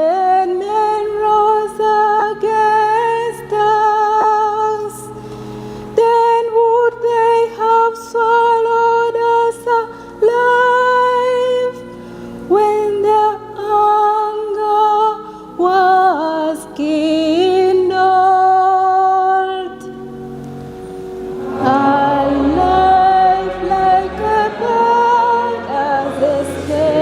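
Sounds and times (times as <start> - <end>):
faint low accompaniment: 20.2 - 27.0
woman singing with vibrato: 21.3 - 27.0.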